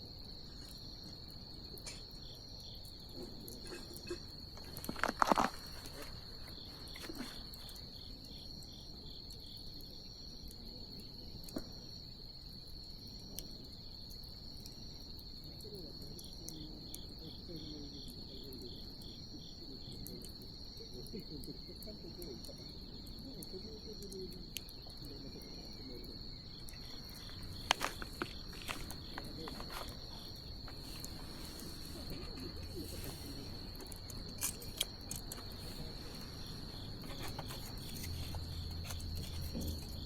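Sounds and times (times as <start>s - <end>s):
cricket pulsed chirps: 0.0s - 40.0s
cricket steady trill: 0.0s - 40.0s
bonfire crackling and popping: 26.4s - 40.0s.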